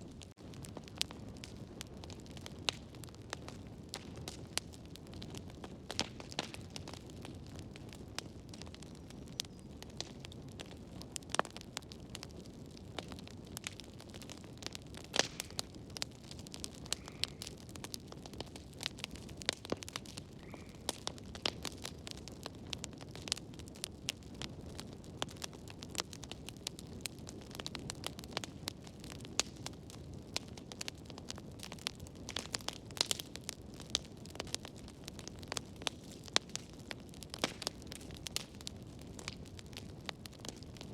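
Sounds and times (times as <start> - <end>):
low rush of flames: 0.0 - 40.9
wood fire crackling and popping: 0.0 - 40.9.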